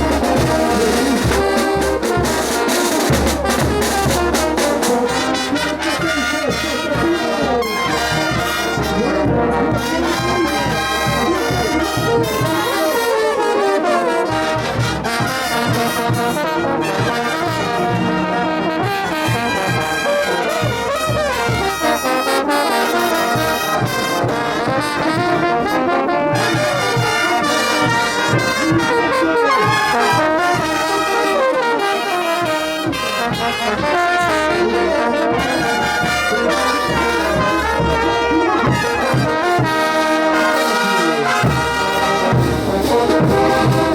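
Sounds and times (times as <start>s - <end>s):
steady drum beat: 0.0s - 6.8s, 32.4s - 43.9s
trumpets and trombones melody: 0.0s - 43.9s.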